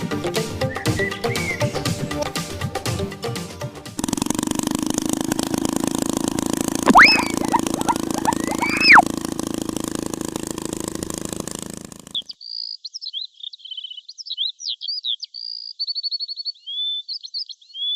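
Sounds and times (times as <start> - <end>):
electronic chirps and trills: 6.9 - 9.0
sliding whistle: 6.9 - 9.0.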